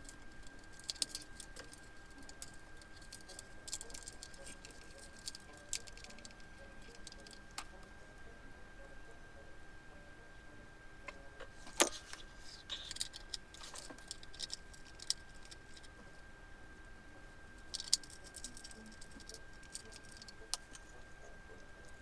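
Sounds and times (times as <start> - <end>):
plastic and metal parts clicking: 0.0 - 7.8, 11.4 - 16.0, 17.6 - 21.1.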